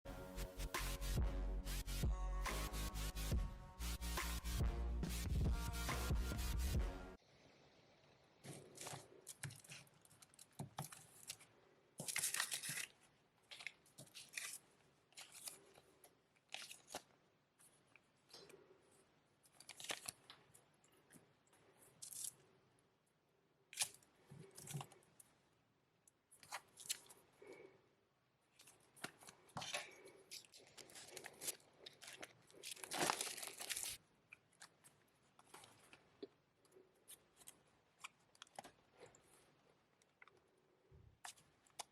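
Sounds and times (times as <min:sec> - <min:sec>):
plastic wrapping crinkling and tearing: 0:08.5 - 0:18.4, 0:19.4 - 0:20.6, 0:28.5 - 0:36.3.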